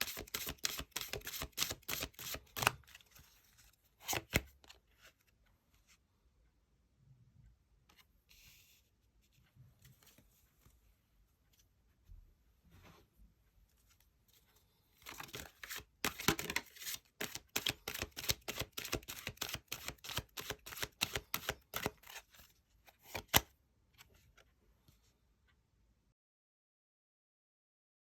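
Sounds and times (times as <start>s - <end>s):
cards being shuffled: 0.0s - 3.4s, 4.0s - 4.8s, 15.0s - 23.5s.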